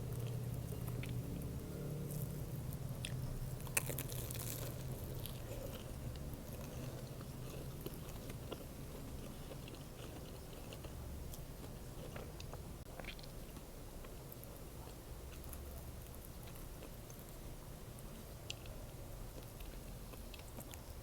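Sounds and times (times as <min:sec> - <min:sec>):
biting and chewing sandwich: 0:00.0 - 0:13.6.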